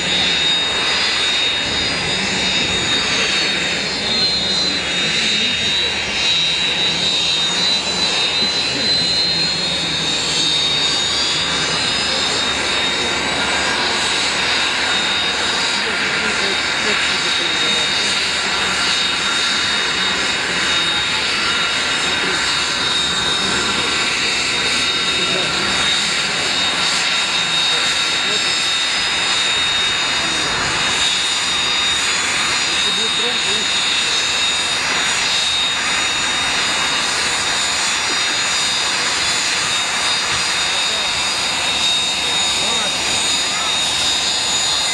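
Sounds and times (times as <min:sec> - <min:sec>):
aircraft engine running: 0:00.0 - 0:44.9.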